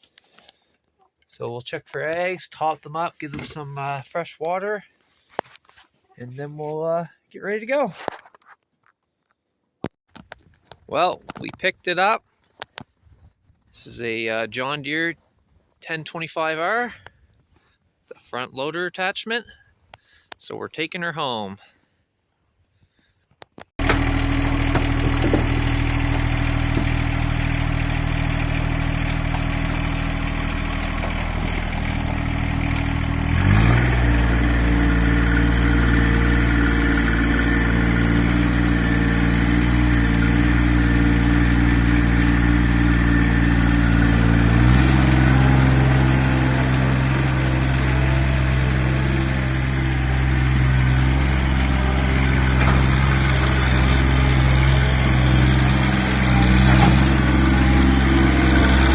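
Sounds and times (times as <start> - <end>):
vehicle engine running under load: 23.8 - 58.9.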